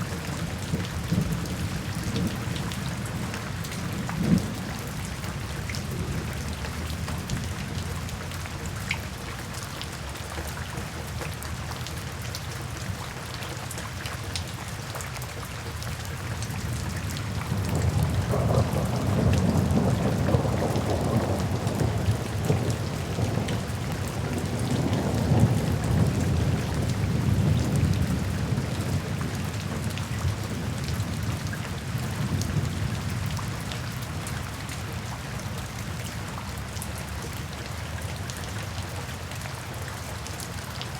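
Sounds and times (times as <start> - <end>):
low rumble of thunder: 0.0 - 8.4, 16.4 - 35.0
rain falling: 0.0 - 40.9.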